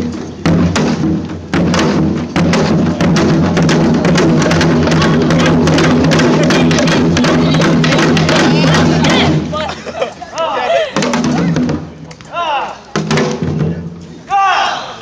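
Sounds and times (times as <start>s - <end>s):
rapid drum strokes: 0.0s - 9.6s.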